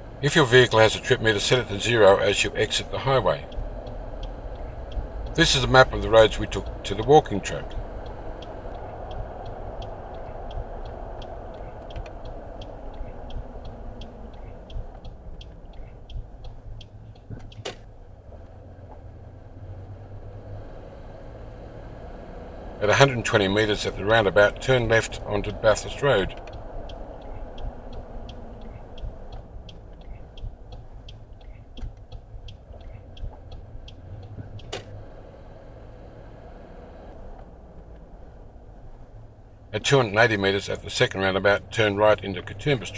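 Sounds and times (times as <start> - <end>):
car cabin road noise: 0.0 - 42.9
turn indicator ticking: 0.0 - 42.9
sharp click: 14.0 - 17.9.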